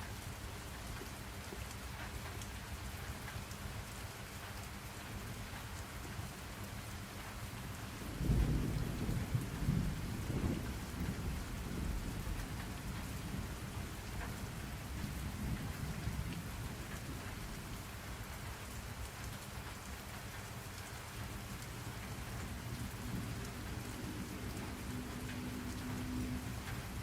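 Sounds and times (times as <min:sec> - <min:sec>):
rain pattering: 0:00.0 - 0:27.0
thunder rumbling: 0:08.0 - 0:17.6.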